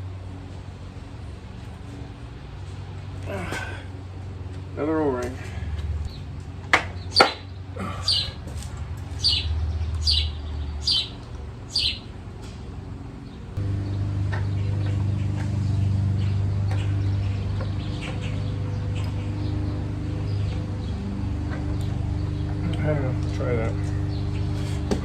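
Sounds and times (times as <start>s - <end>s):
steady low hum: 0.0s - 25.0s
bird chirping: 6.9s - 8.4s, 9.0s - 12.2s, 13.2s - 25.0s.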